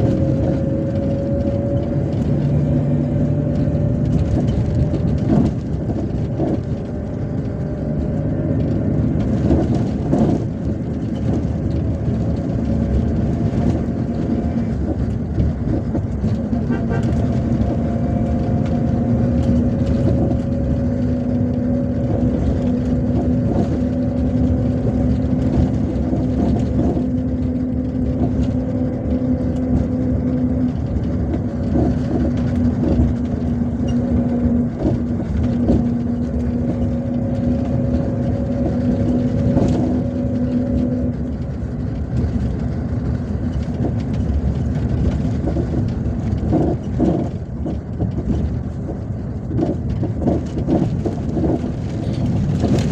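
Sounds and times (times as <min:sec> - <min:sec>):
bus engine and tyre rumble: 0:00.0 - 0:52.9.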